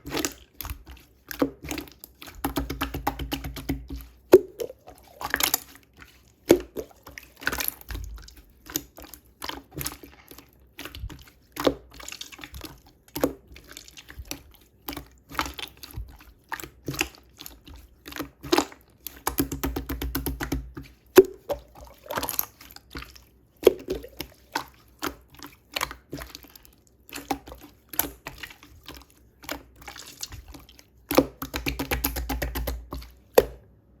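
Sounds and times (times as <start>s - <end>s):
wet clicks and drips: 0.0s - 33.6s
steady liquid noise: 0.0s - 33.7s.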